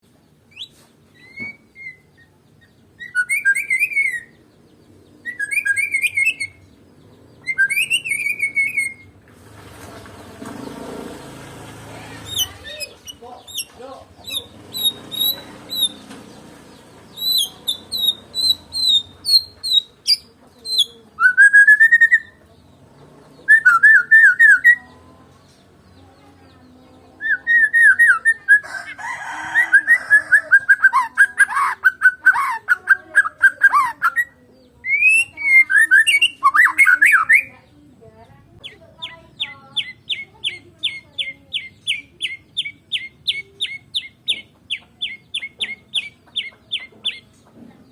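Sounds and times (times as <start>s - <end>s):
songbird singing whistled phrases: 0.5s - 4.4s, 5.2s - 6.7s, 7.3s - 9.2s, 12.2s - 16.1s, 17.1s - 22.4s, 23.4s - 25.0s, 27.0s - 28.6s, 29.6s - 37.5s, 38.6s - 47.4s.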